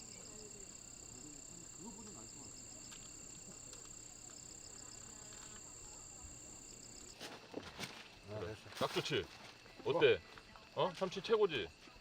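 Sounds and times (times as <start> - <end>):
insect chirping in pulses: 0.0 - 7.2
insect trilling: 0.0 - 7.2
faint distant voices: 0.0 - 12.0.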